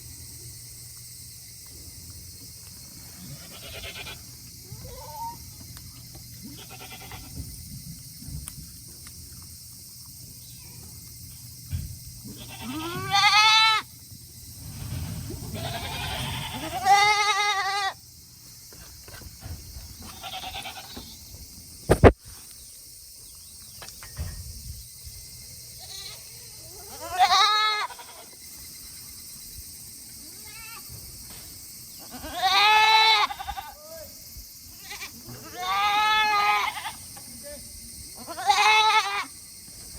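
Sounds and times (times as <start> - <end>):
goats bleating: 3.2 - 5.4, 6.5 - 7.4, 12.3 - 13.9, 15.5 - 18.0, 20.1 - 21.2, 26.8 - 28.3, 32.0 - 33.8, 34.8 - 37.1, 38.2 - 39.3.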